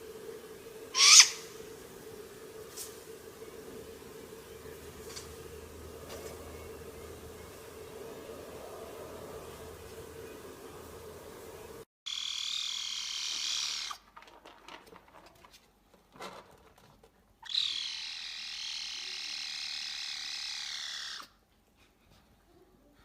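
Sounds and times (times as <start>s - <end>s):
animal buzzing trill: 0.9s - 1.8s.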